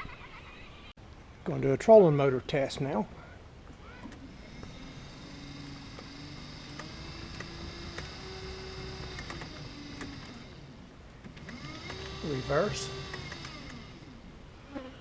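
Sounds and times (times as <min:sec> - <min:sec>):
electric motor whine: 0:03.9 - 0:15.0.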